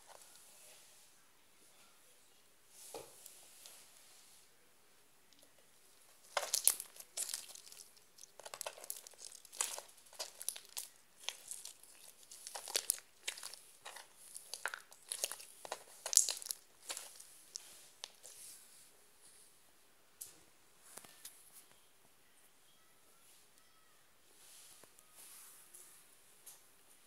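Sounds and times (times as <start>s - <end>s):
slime with beads crackling: 6.1s - 18.4s.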